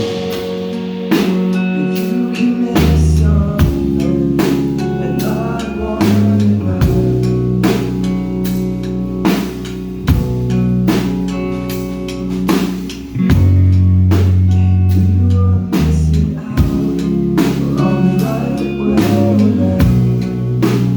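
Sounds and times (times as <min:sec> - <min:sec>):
rock band playing live: 0:00.0 - 0:20.9
heavy drum hits: 0:09.3 - 0:11.4.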